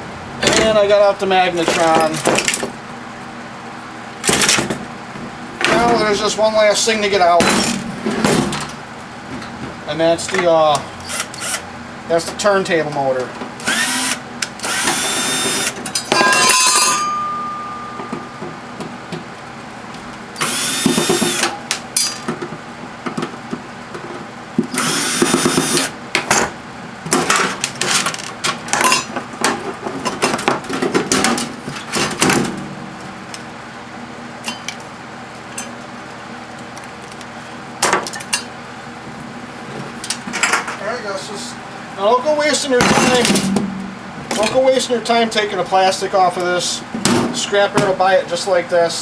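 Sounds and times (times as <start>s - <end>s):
power drill running: 11.1s - 11.6s, 13.6s - 15.8s, 20.4s - 21.5s, 24.8s - 25.9s.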